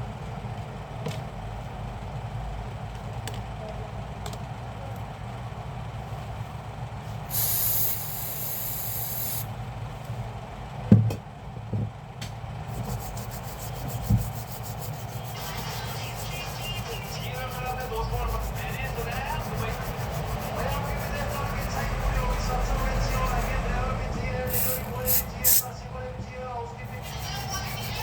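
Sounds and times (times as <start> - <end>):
steady low hum: 6.6 - 10.7, 12.5 - 28.0
short hiss: 7.3 - 9.5, 24.5 - 25.7.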